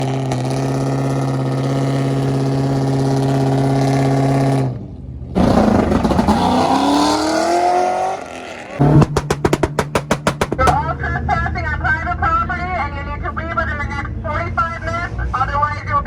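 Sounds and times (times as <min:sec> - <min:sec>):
car engine at steady revs: 0:00.0 - 0:10.9
car accelerating hard: 0:05.4 - 0:10.9.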